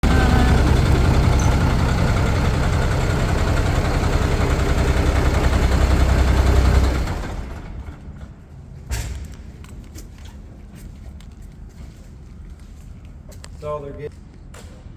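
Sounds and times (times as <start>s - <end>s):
diesel engine running: 0.0s - 8.8s.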